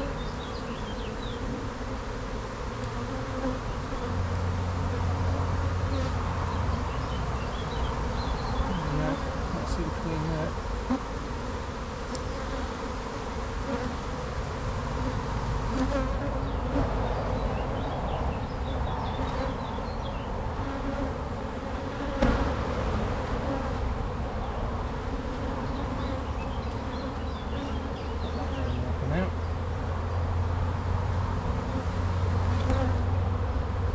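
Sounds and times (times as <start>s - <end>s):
bees buzzing: 0.0s - 33.9s
sharp knock: 22.2s - 22.6s.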